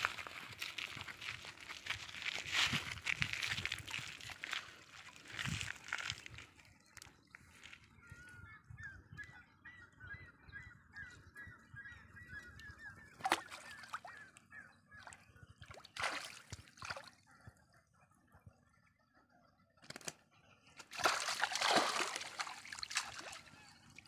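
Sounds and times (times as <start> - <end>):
water splashing: 15.7 - 17.1, 20.8 - 23.7.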